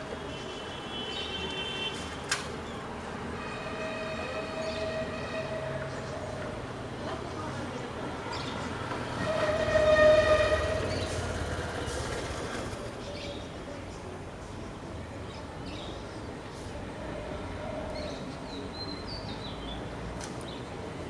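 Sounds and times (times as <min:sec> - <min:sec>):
outdoor background noise: 0:00.0 - 0:21.0
distant horn blast: 0:03.4 - 0:06.4, 0:09.2 - 0:11.6.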